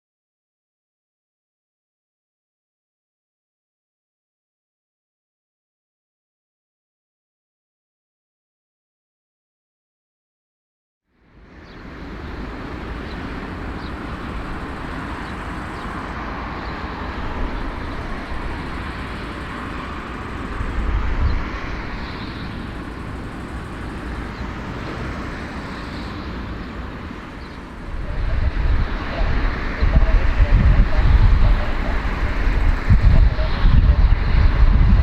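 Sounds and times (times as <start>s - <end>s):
airplane engines roaring: 11.1s - 35.0s
wind rumbling on microphone: 11.4s - 35.0s.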